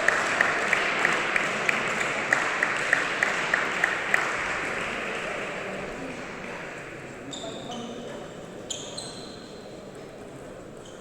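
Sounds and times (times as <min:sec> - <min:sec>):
person clapping a steady beat: 0:00.0 - 0:05.3
spectators applauding: 0:00.0 - 0:05.9.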